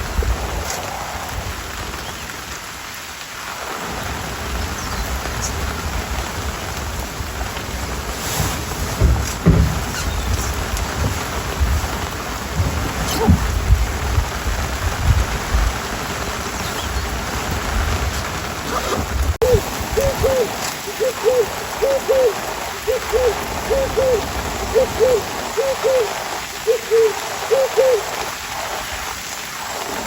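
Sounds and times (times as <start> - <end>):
rain hiss: 0.0 - 30.0
hooting animal call: 18.7 - 28.2.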